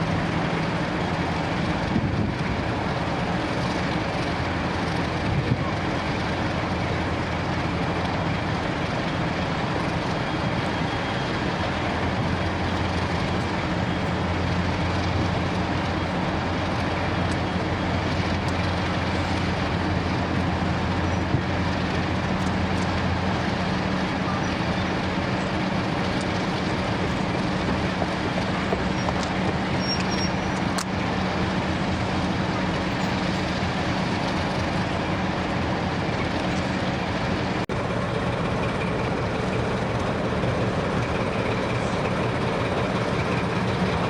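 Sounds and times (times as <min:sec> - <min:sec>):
locomotive engine droning: 0:00.0 - 0:44.0.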